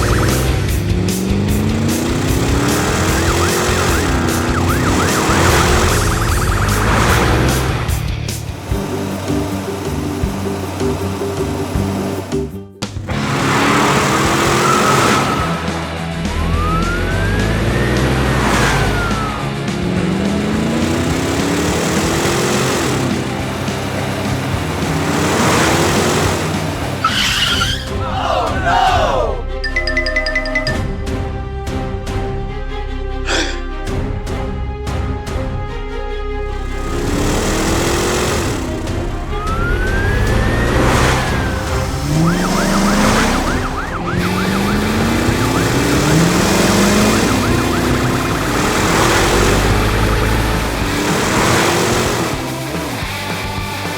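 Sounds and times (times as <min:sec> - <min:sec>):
falling whistling glides: 0:00.0 - 0:00.8, 0:02.5 - 0:07.8, 0:13.7 - 0:19.7, 0:27.0 - 0:27.9, 0:36.6 - 0:52.0
rising low tones: 0:00.0 - 0:27.0, 0:36.5 - 0:53.3
cartoon engine revving: 0:00.0 - 0:29.2, 0:36.5 - 0:53.6
background music: 0:00.0 - 0:53.9
cartoon siren wailing: 0:02.7 - 0:07.4, 0:16.3 - 0:19.5, 0:39.2 - 0:48.2.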